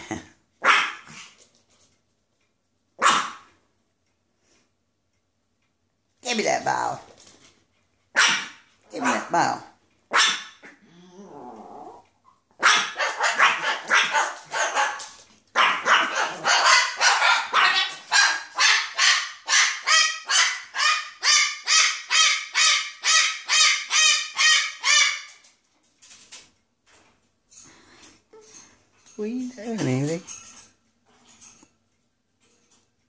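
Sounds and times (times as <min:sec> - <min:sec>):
dog barking: 0:00.6 - 0:01.1, 0:03.0 - 0:03.5, 0:08.1 - 0:09.4, 0:10.1 - 0:10.7, 0:12.6 - 0:25.3.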